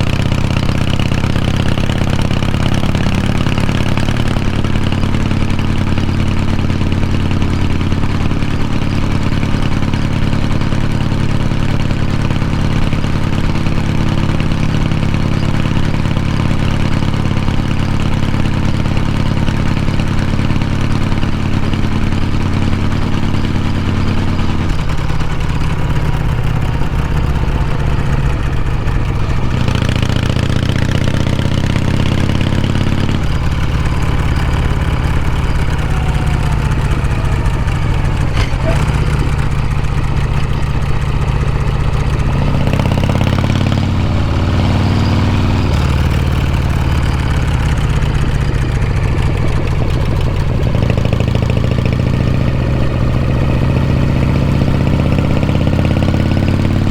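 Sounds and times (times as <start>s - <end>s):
motorcycle engine and exhaust: 0.0s - 56.9s.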